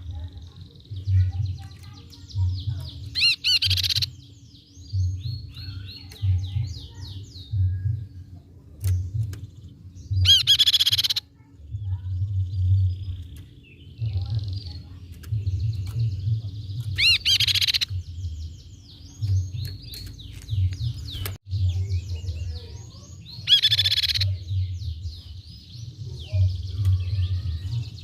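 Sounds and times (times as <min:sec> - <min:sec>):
rapid rattling bird trills: 0:00.0 - 0:07.5, 0:08.8 - 0:28.0
bird calling with high chirps: 0:00.0 - 0:28.0
low uneven rumble: 0:11.4 - 0:17.1.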